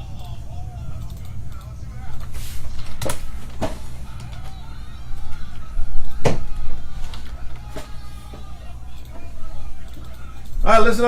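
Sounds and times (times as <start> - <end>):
faint clicks: 0.9 - 3.4, 6.4 - 10.6.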